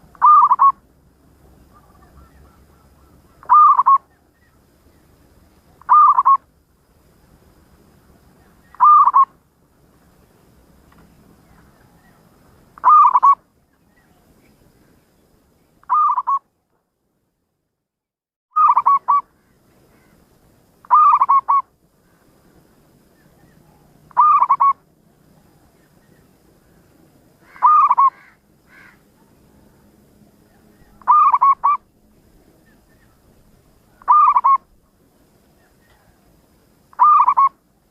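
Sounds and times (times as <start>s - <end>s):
dove cooing: 0.0s - 0.8s, 1.6s - 4.2s, 5.8s - 6.4s, 8.6s - 9.3s, 12.8s - 13.4s, 15.9s - 16.4s, 18.6s - 19.2s, 20.8s - 21.7s, 23.4s - 24.8s, 27.4s - 29.7s, 30.5s - 31.9s, 33.9s - 34.8s, 36.9s - 37.6s.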